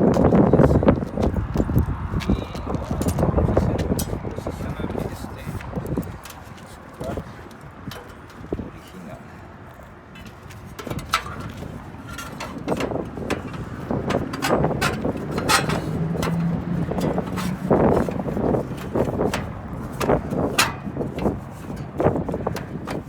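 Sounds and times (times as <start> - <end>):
tools clicking and knocking: 7.8 - 8.6, 10.6 - 23.0.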